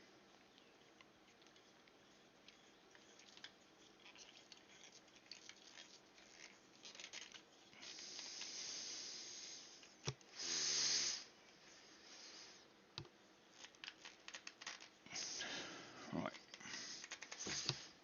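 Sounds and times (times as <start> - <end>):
soft rustling hiss: 0.0 - 18.0
small clicks and scrapes: 0.3 - 8.6, 13.0 - 15.4, 16.3 - 17.9.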